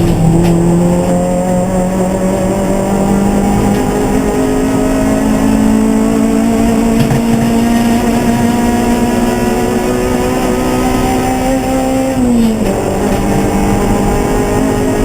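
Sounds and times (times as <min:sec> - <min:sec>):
race car engine at high revs: 0:00.0 - 0:15.0.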